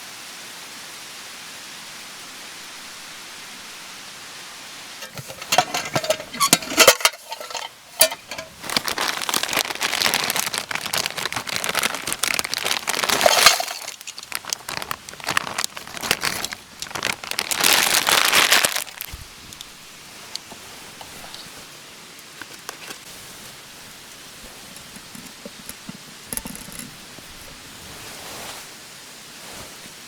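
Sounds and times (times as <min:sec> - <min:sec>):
clicks and clinks: 0:05.0 - 0:08.9, 0:13.0 - 0:14.7
crinkling and rustling: 0:05.0 - 0:30.0.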